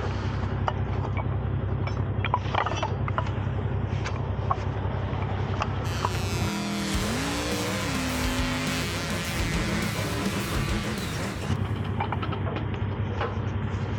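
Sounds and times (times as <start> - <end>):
truck engine running: 5.9 - 13.0.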